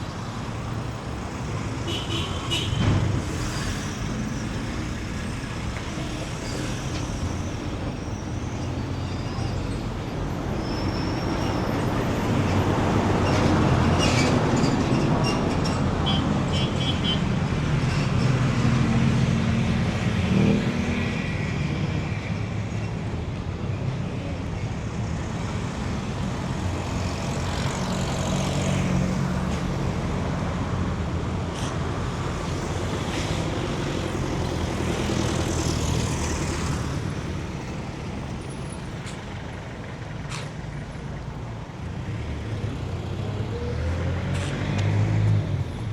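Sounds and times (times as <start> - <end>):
vehicles passing: 0.0 - 45.9.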